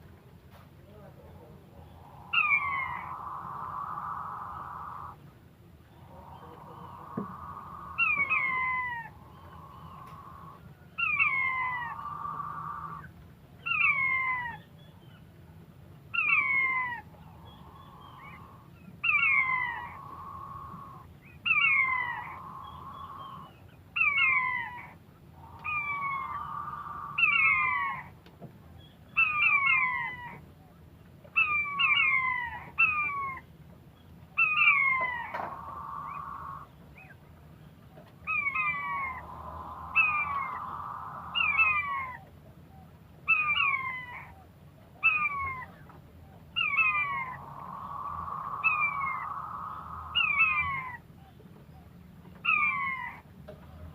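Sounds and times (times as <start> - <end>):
quail calling: 1.4 - 5.2, 5.9 - 14.6, 16.2 - 28.2, 29.2 - 30.4, 31.4 - 33.4, 34.4 - 37.2, 38.2 - 42.3, 43.3 - 44.4, 45.0 - 45.8, 46.6 - 51.0, 52.4 - 53.2.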